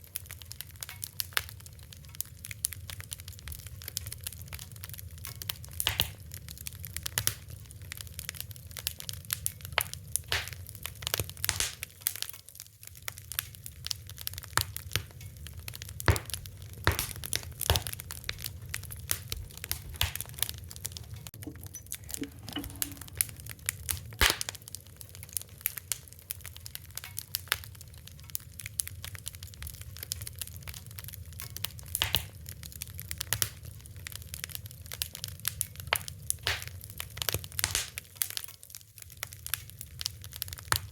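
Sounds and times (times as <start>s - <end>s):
low rumble of burning: 0.0s - 40.9s
wood fire pops and snaps: 0.0s - 40.9s.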